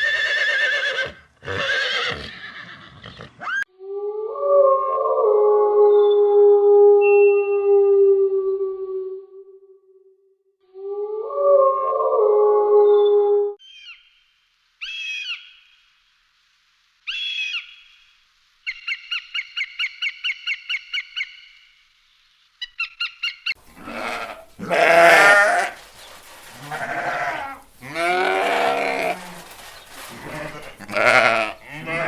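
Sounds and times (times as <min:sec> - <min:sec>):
goats bleating: 0:23.6 - 0:32.0.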